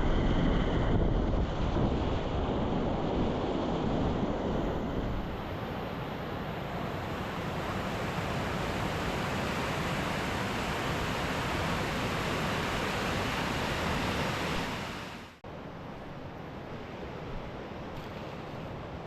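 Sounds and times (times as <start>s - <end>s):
rushing whitewater: 5.4s - 15.4s.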